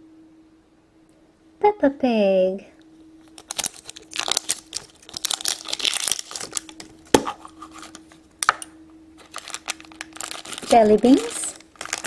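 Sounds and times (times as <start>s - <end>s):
wrapper crinkling and tearing: 3.3s - 8.6s, 9.2s - 12.0s.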